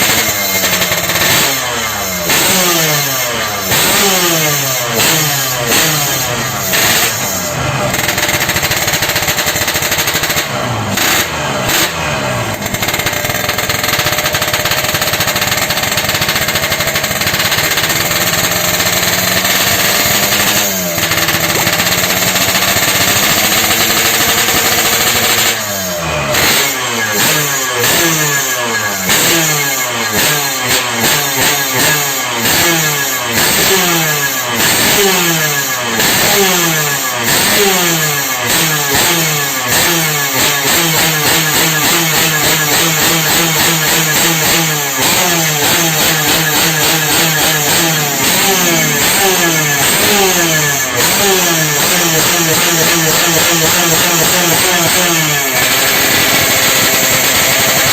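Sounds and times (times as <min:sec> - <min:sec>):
two-stroke motorcycle engine revving: 0:00.0 - 0:57.9.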